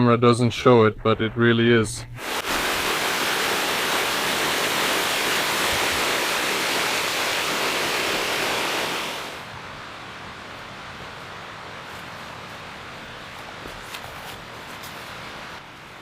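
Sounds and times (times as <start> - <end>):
waterfall rushing: 2.2 - 11.9.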